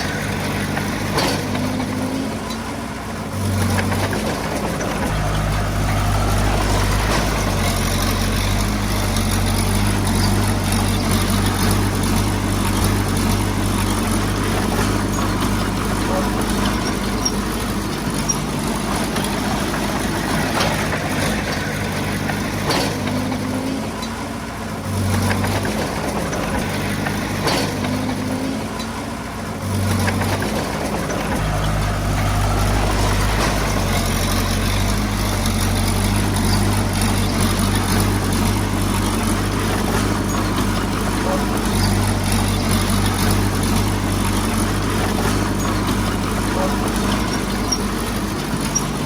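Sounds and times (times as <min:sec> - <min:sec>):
diesel engine under load: 0:00.0 - 0:49.0.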